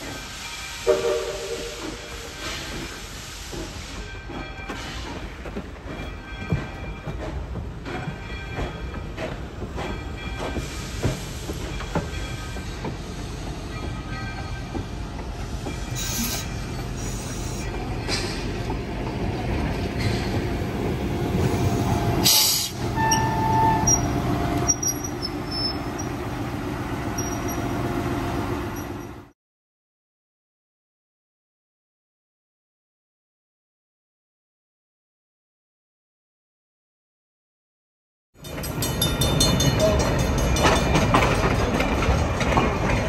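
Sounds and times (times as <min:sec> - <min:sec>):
train coaches rumbling past: 0:00.0 - 0:29.3, 0:38.4 - 0:43.0
high wheel squeals: 0:15.8 - 0:17.7, 0:21.5 - 0:26.2.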